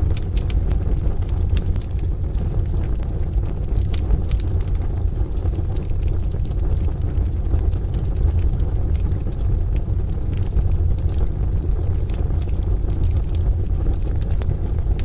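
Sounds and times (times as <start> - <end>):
low rumble: 0.0 - 15.0
rain: 0.0 - 15.0
wood stove fire crackling: 0.0 - 15.0.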